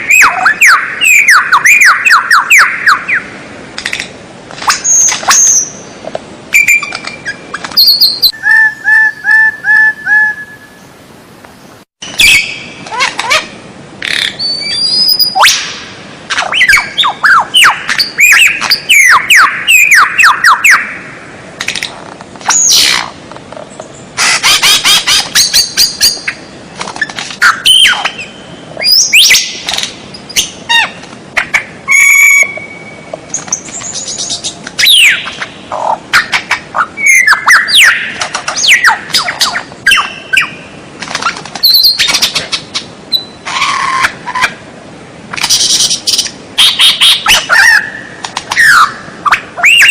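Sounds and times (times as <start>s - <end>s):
songbird singing varied song: 4.8s - 13.4s, 14.0s - 15.7s, 43.1s - 43.7s.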